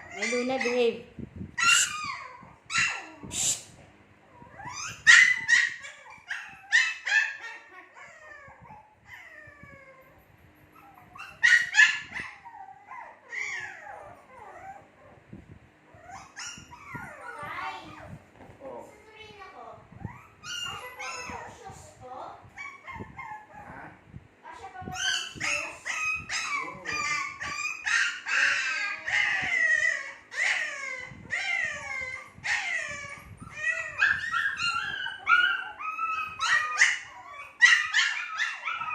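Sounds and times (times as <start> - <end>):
puppies whining and howling: 0.0 - 0.9, 1.6 - 3.3, 4.3 - 15.3, 15.9 - 18.2, 19.9 - 21.7, 22.5 - 23.9, 24.8 - 38.9
puppy yapping: 1.6 - 3.3, 4.6 - 9.5, 10.8 - 14.8, 24.9 - 38.9.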